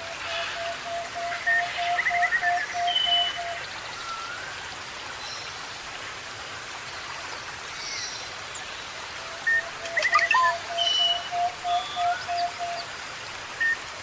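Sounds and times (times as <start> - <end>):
forest birds calling: 0.0 - 4.4, 7.8 - 12.9.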